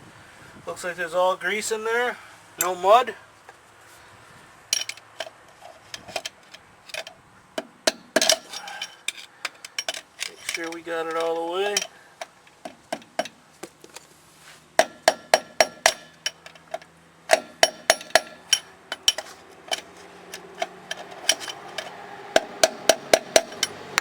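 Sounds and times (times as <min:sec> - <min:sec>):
hammer tapping on steel nut: 0:11.2 - 0:13.4, 0:14.8 - 0:24.0.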